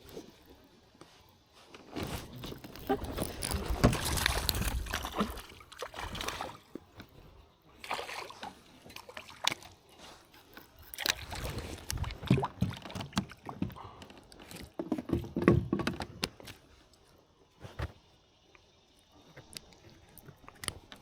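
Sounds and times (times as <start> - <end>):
water splashing around kayak: 1.6 - 16.9.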